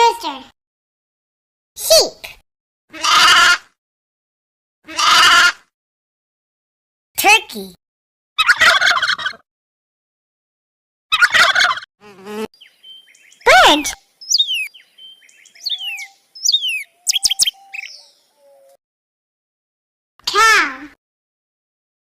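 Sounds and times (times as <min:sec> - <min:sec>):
turkey gobbling: 0:08.4 - 0:09.4, 0:11.1 - 0:11.9
small bird chirping and whistling: 0:12.6 - 0:18.8.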